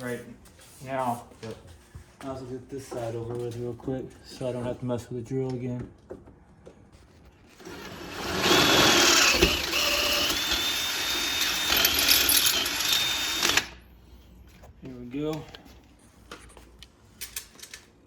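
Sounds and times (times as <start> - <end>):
power drill drilling through metal: 7.6 - 13.8.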